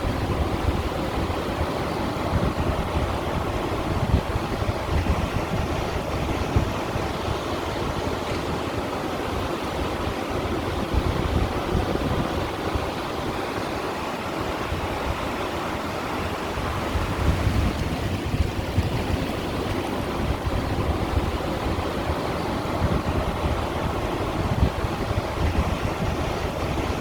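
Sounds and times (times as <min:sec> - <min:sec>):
waves washing against stones: 0:00.0 - 0:27.0.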